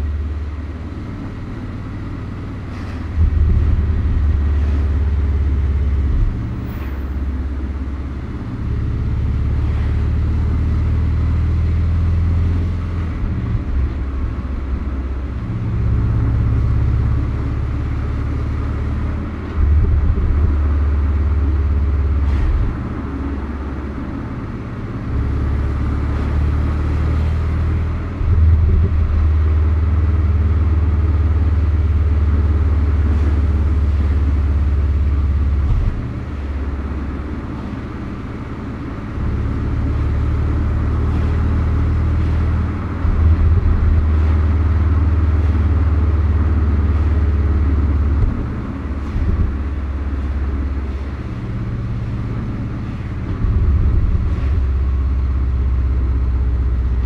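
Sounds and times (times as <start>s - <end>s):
car engine rumble: 0.0s - 57.0s
road noise: 0.0s - 57.0s.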